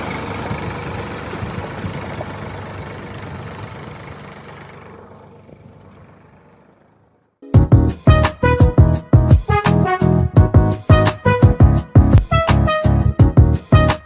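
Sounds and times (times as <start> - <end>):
vehicle engine running: 0.0 - 9.5
music with sharp rhythmic hits: 7.5 - 14.0.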